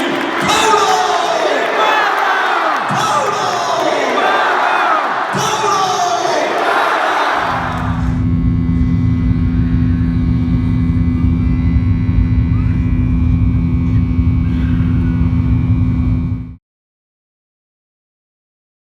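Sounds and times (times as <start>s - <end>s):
low mechanical drone: 7.3s - 16.6s.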